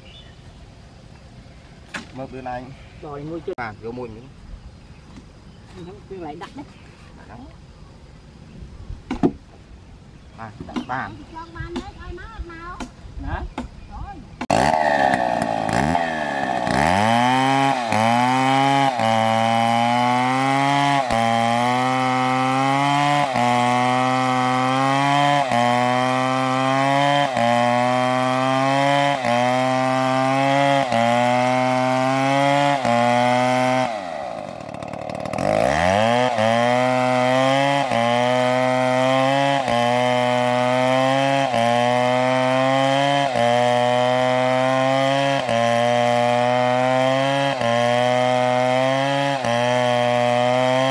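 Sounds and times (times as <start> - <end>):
chainsaw cutting wood: 14.4 - 50.9.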